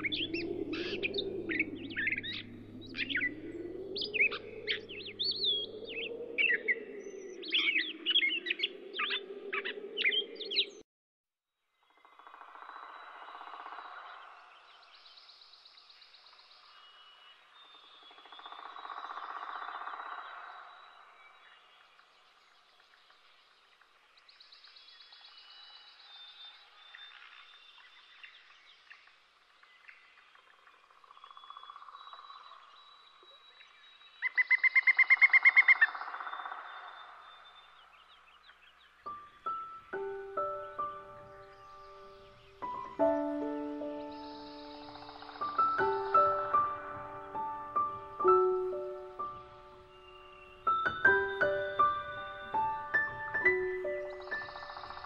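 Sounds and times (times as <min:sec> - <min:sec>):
birds chirping and trilling: 0:00.0 - 0:10.8, 0:11.8 - 0:55.0
loud rapid bird trill: 0:39.0 - 0:55.0.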